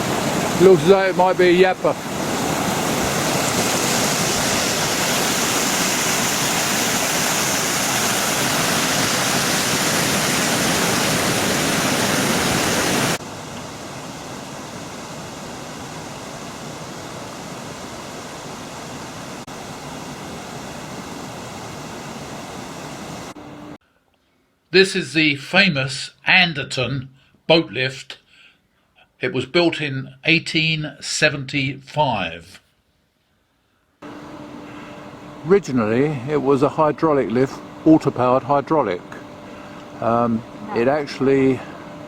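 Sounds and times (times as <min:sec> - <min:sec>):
steady rushing noise: 0:00.0 - 0:23.8.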